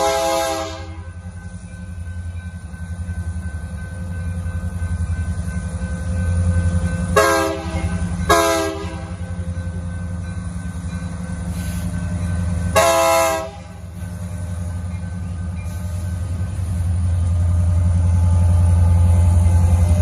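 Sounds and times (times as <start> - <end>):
locomotive air horn blasts: 0.0 - 1.1, 7.2 - 9.2, 12.7 - 13.8
freight train rumbling: 0.0 - 20.0.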